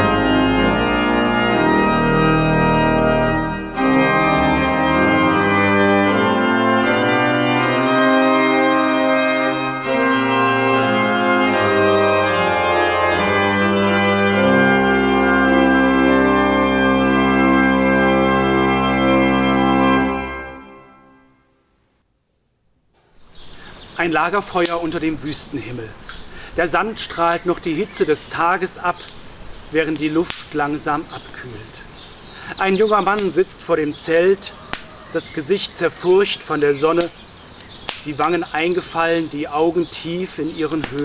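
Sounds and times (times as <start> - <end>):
deep bass organ note: 0.0 - 21.2
organ chords: 0.0 - 21.6, 23.3 - 41.0.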